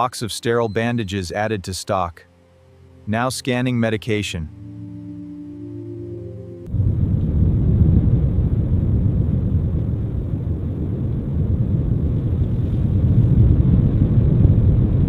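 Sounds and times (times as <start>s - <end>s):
loud low rumble: 4.4s - 15.0s.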